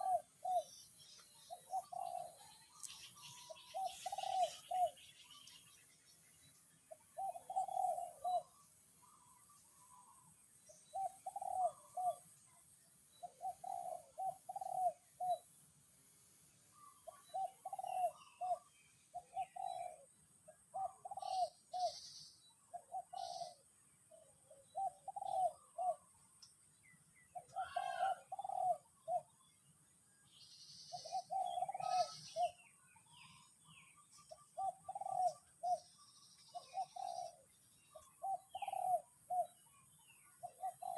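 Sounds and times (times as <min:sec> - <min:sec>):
higher bird chirps: 0:00.0 - 0:10.2
bird cooing: 0:00.0 - 0:15.7, 0:16.7 - 0:29.6, 0:30.3 - 0:40.9.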